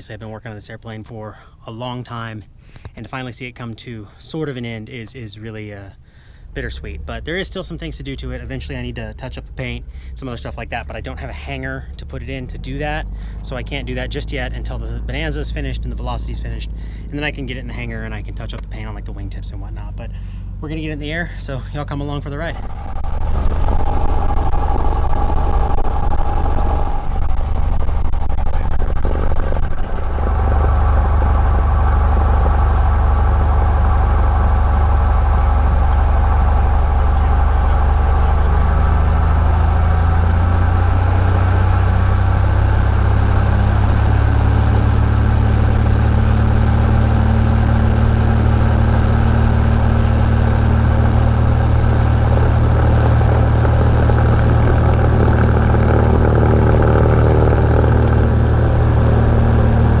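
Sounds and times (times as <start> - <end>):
aircraft piston engine running: 22.4 - 60.0.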